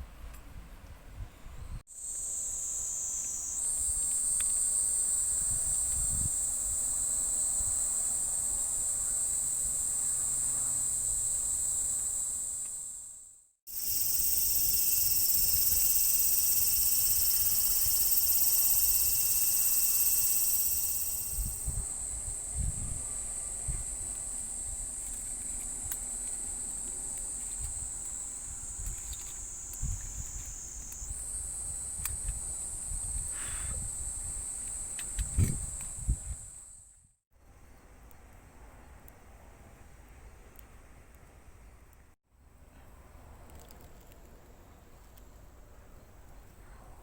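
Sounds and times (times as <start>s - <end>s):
insects shrilling: 2.0s - 23.2s, 23.9s - 36.8s.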